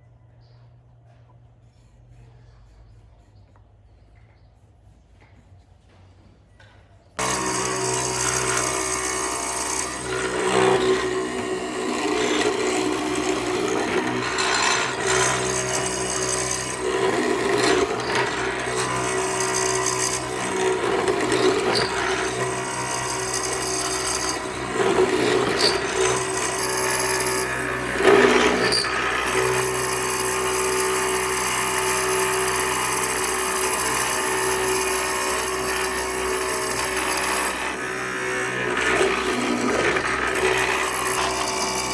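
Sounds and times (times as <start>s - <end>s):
rasping on wood: 7.2s - 35.0s
power tool motor humming: 7.2s - 41.9s.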